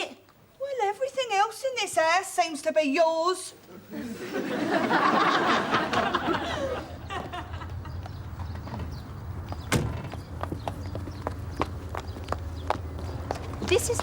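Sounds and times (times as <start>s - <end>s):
audience laughter: 3.9s - 8.0s.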